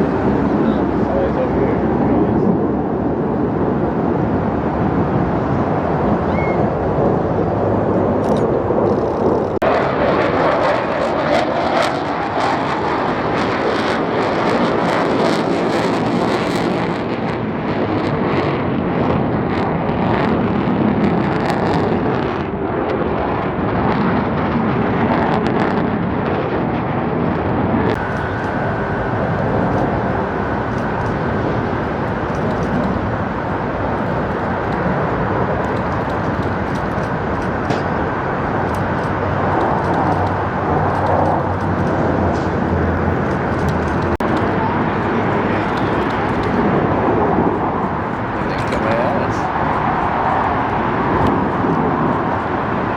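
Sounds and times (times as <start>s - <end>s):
thin steady whine: 0.0s - 16.7s, 27.9s - 52.9s
aircraft engine flyby: 0.0s - 52.9s.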